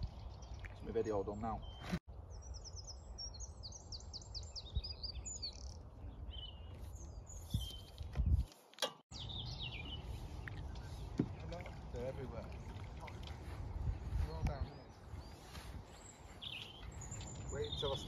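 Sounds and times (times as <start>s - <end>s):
small songbirds chirping: 0.0s - 8.5s, 9.1s - 18.0s
wind rumble on microphone: 2.2s - 8.5s, 12.5s - 18.0s.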